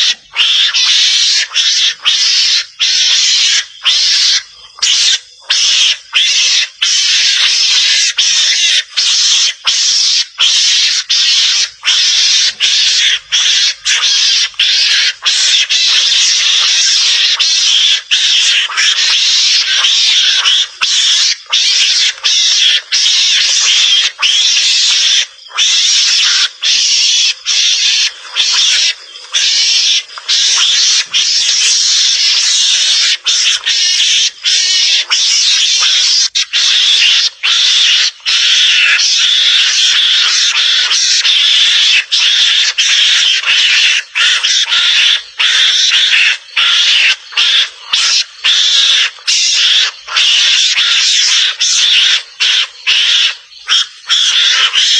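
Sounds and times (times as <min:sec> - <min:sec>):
mongoose hissing chatter: 0:00.0 - 0:54.9.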